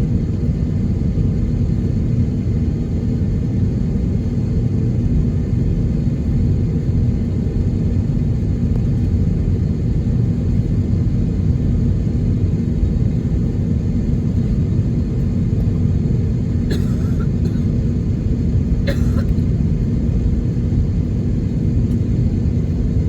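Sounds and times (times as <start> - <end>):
jet engines idling in cabin: 0.0 - 23.0.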